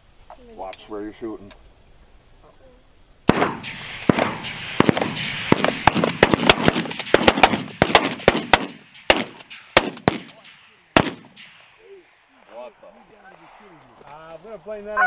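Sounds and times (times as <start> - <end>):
rapid overlapping shotgun shots: 3.3 - 13.9.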